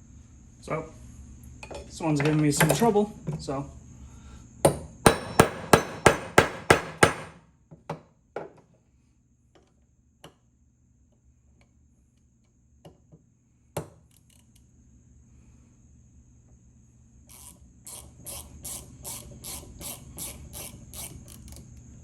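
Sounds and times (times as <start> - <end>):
hammer striking metal: 4.7 - 7.4.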